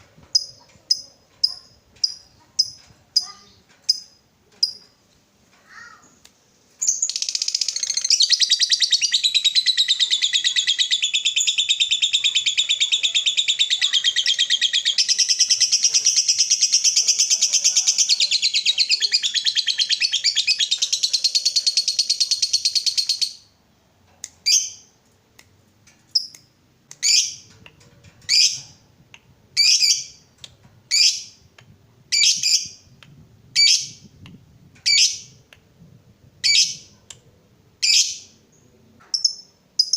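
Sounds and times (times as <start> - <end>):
lovebird chattering trill: 6.8 - 23.4.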